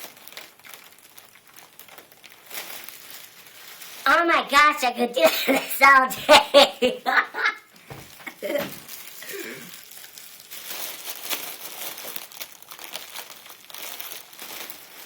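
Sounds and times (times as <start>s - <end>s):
balloon crinkling and rustling: 0.0s - 15.0s
high-pitched vocal sounds: 4.1s - 7.5s.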